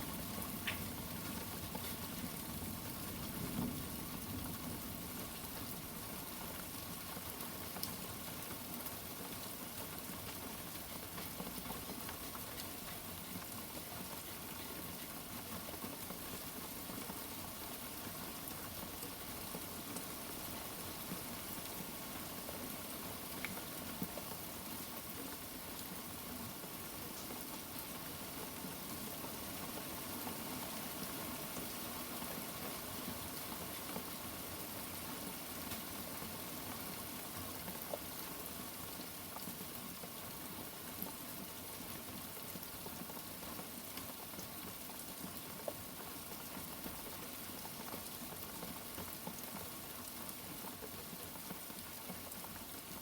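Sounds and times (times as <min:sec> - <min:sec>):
steady rain: 0:00.0 - 0:53.0
faint drip ticks: 0:00.6 - 0:00.9.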